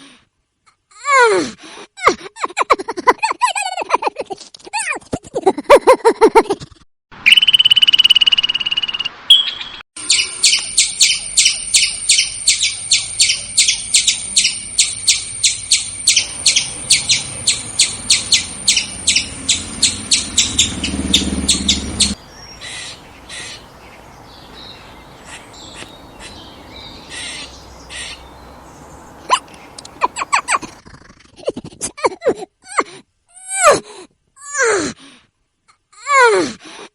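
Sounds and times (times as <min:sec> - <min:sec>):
squirrel alarm calls: 0:09.3 - 0:30.8.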